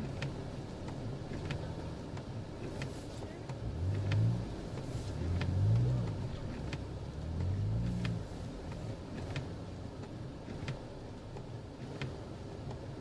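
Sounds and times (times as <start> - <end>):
light ticks: 0.0 - 13.0
car engine revving: 3.4 - 10.0.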